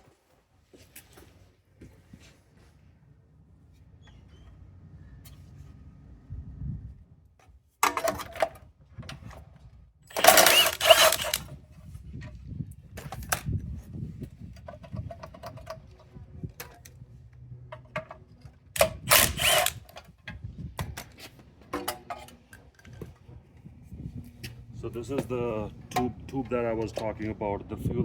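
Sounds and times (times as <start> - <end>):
metal clatter: 10.1 - 11.5
ratchet clicks: 10.1 - 11.5, 18.8 - 19.9.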